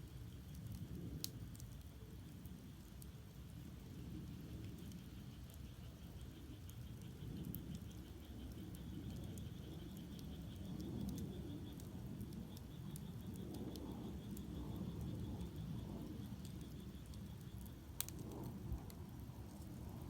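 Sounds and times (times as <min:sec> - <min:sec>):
fire crackling and popping: 0:00.0 - 0:20.0
low rumble of flames: 0:00.0 - 0:20.0
frogs trilling: 0:04.3 - 0:19.2.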